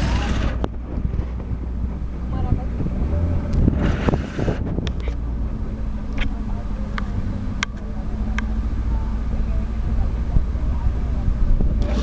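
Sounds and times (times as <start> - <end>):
speedboat motor droning: 0.0 - 12.0.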